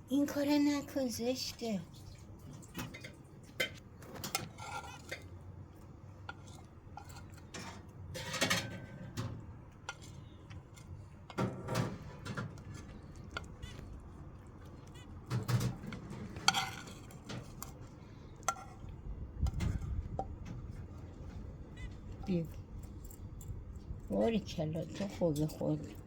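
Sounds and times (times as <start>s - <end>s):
food dish clinking and clattering: 7.0s - 10.1s, 11.3s - 13.4s, 15.3s - 17.8s.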